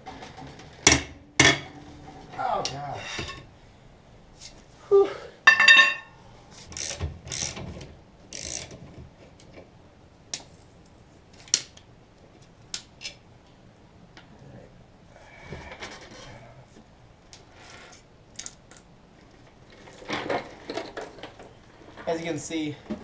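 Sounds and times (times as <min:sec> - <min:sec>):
loud metallic clang: 0:00.8 - 0:02.3.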